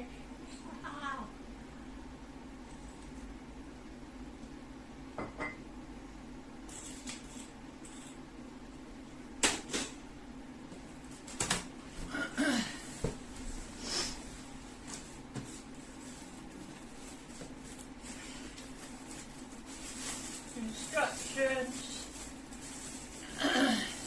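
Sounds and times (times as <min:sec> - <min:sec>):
packaging rustle: 0:15.8 - 0:23.4.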